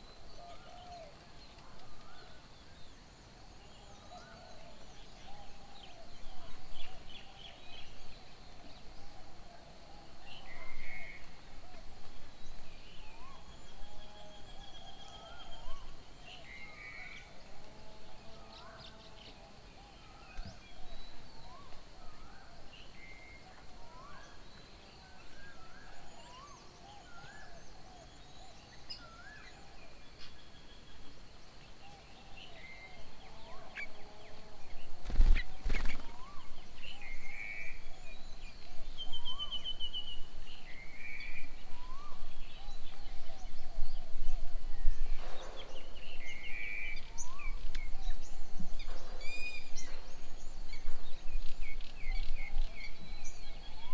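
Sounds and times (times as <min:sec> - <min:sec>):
wild birds chirping and whistling: 0:31.8 - 0:53.9.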